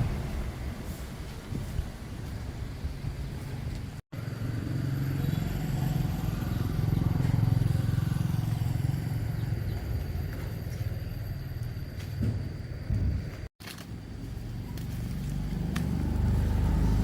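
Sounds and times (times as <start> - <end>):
engine running with low hum: 0.0 - 17.0.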